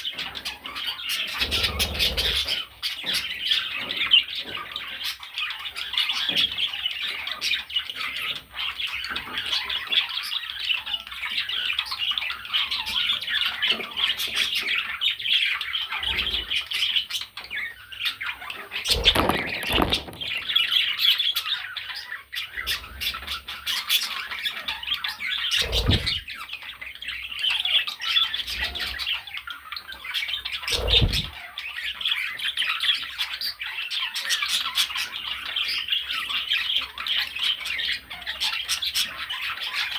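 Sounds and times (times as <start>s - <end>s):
budgerigar chattering: 1.2s - 3.0s, 25.5s - 26.3s, 30.7s - 31.4s.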